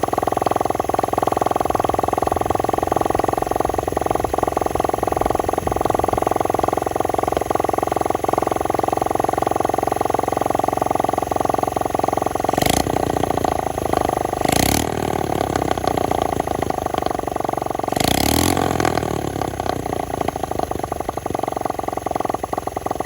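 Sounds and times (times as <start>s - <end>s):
small engine idling and revving: 0.0s - 23.0s.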